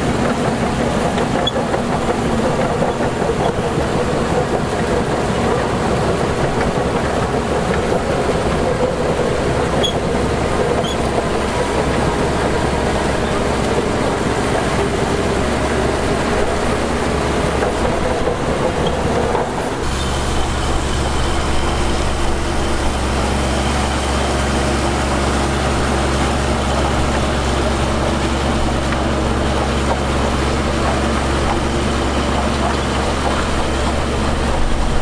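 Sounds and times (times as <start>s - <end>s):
heavy diesel machinery running: 0.0s - 35.0s.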